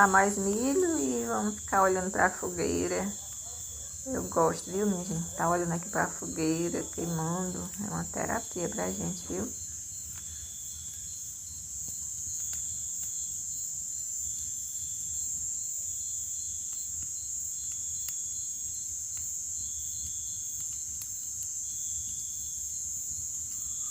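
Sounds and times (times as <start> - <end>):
insect pulsed calls: 0.0 - 16.5
bonfire crackling: 0.0 - 23.9
crickets trilling: 0.0 - 23.9.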